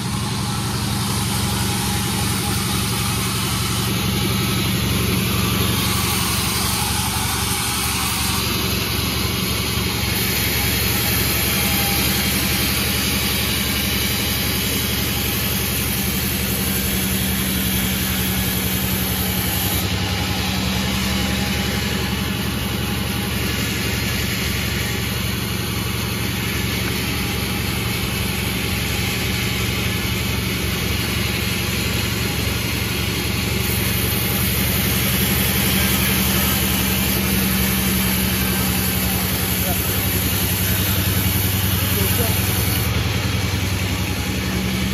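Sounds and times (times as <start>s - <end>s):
sawmill machine humming: 0.0s - 44.9s.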